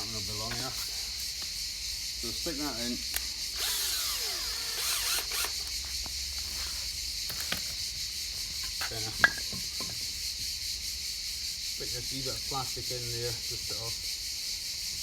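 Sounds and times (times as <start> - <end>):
power drill driving a screw: 3.1 - 5.8.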